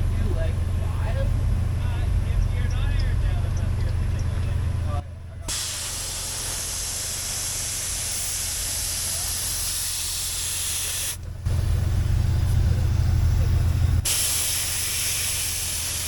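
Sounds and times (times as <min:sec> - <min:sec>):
air hissing from tyre valve: 0:05.5 - 0:16.0
low hum: 0:11.2 - 0:14.1.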